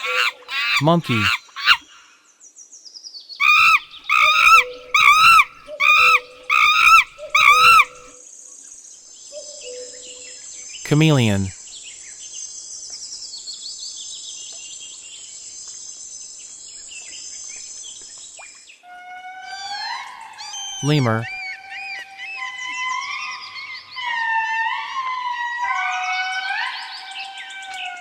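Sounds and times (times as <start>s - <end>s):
monkey calling: 0.0s - 1.9s, 3.4s - 8.1s
high insect drone: 3.4s - 8.0s.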